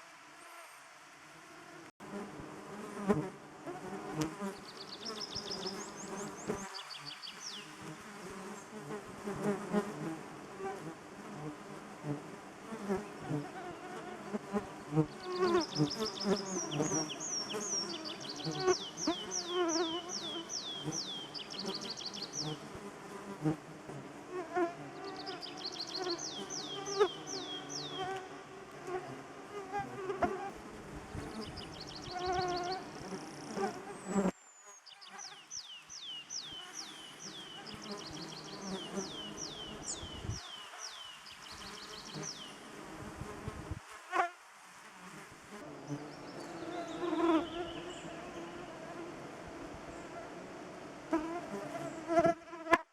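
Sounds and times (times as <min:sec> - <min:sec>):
insects buzzing: 0:00.0 - 0:52.8.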